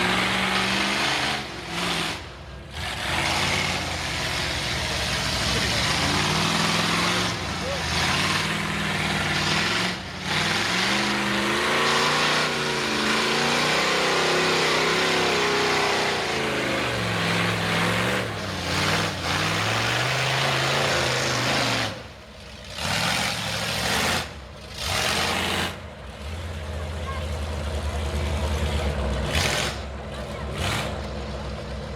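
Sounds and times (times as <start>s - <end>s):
truck engine revving hard: 0.0s - 31.9s.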